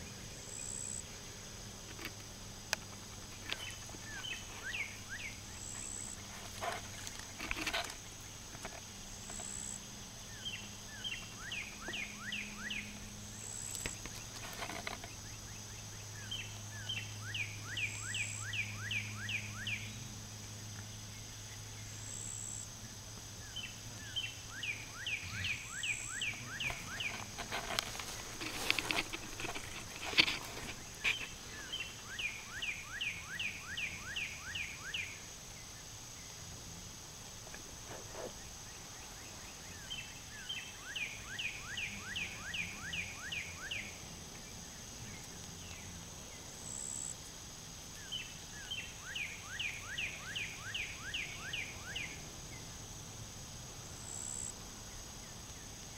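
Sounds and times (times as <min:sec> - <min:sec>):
bird chirping: 0:03.4 - 0:07.9, 0:09.3 - 0:20.0, 0:23.4 - 0:36.4.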